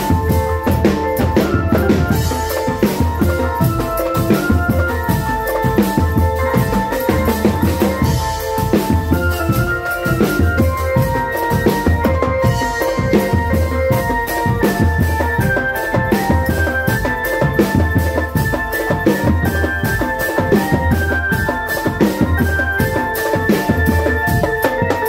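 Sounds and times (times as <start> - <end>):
fast drumming: 0.0 - 25.0
held note melody: 0.0 - 25.0.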